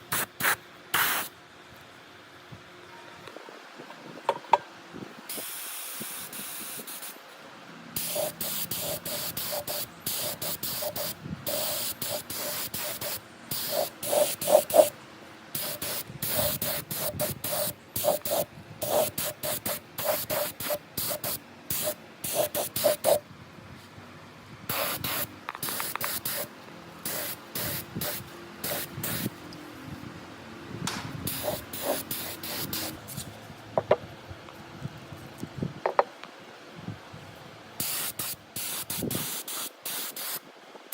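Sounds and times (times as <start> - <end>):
compressed air bursts hissing: 0.0 - 1.3, 5.3 - 7.2, 8.0 - 23.2, 24.7 - 29.4, 31.2 - 33.3, 37.8 - 40.4.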